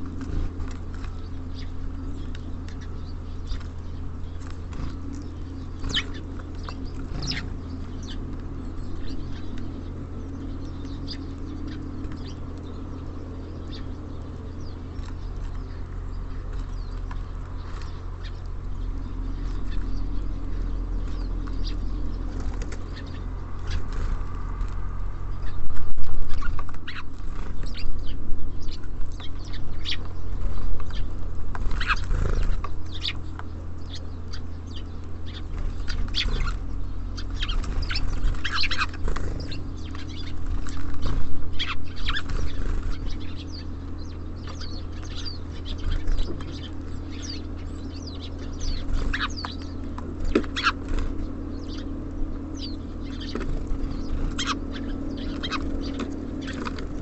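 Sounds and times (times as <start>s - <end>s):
pecking and landing clicks: 0.0s - 24.9s
steady low hum: 0.0s - 57.0s.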